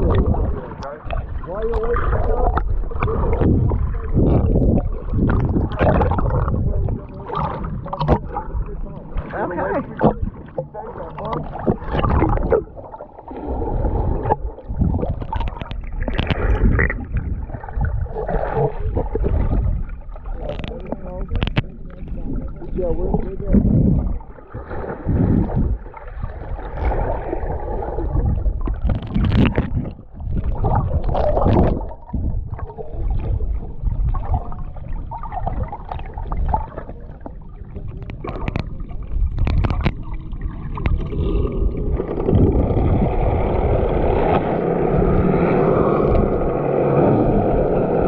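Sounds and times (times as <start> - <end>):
water splashing: 0.0 - 48.0
wind rumbling on microphone: 0.0 - 48.0.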